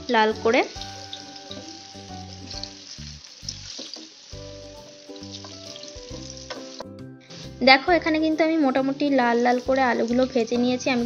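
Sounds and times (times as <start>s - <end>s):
potatoes sizzling in hot oil: 0.0s - 11.0s
soft background music: 0.0s - 11.0s
wooden spatula turning food: 0.6s - 7.6s.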